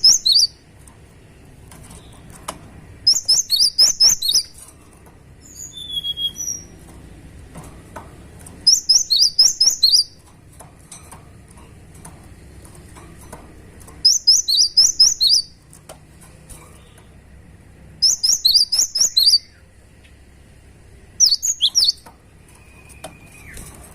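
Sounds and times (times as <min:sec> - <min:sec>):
bird singing rapid high notes: 0:00.0 - 0:00.6, 0:03.0 - 0:04.6, 0:05.4 - 0:06.8, 0:08.6 - 0:10.2, 0:14.0 - 0:15.6, 0:18.0 - 0:19.7, 0:21.2 - 0:23.6
soft high bird calls: 0:08.7 - 0:10.2, 0:14.0 - 0:15.6, 0:18.0 - 0:19.7, 0:21.2 - 0:23.7.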